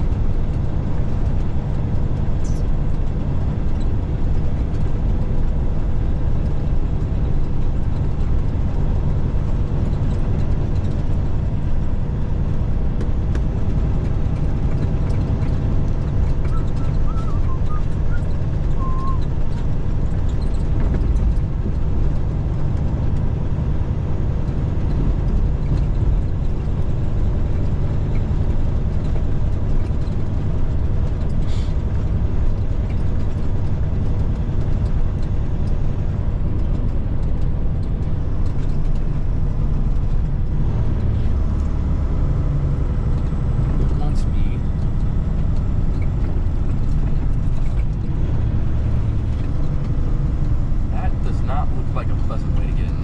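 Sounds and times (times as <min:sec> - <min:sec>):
road noise: 0:00.0 - 0:53.0
truck diesel engine drone: 0:00.0 - 0:53.0
brief air hiss: 0:31.5 - 0:31.7.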